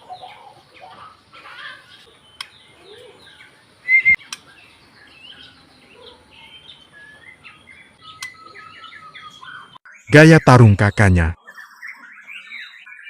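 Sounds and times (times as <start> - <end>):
bird singing whistles and chirps: 2.3 - 10.2, 11.4 - 13.0.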